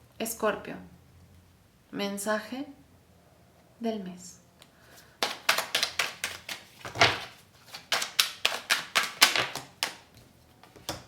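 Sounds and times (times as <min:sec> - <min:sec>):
cards being shuffled: 0:05.0 - 0:11.0.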